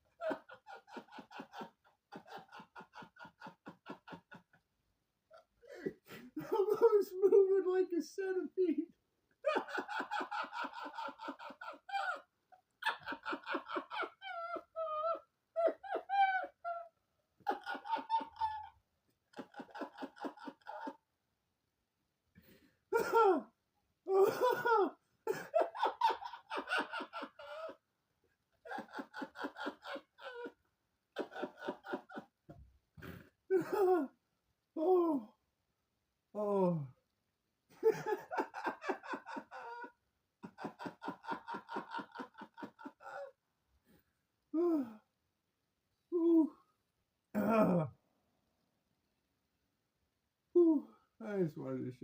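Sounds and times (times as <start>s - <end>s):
person laughing hard: 0.1s - 4.6s, 5.7s - 8.8s, 9.4s - 21.0s, 22.9s - 23.5s, 24.1s - 27.8s, 28.6s - 30.6s, 31.2s - 32.3s, 33.0s - 34.2s, 37.8s - 43.3s.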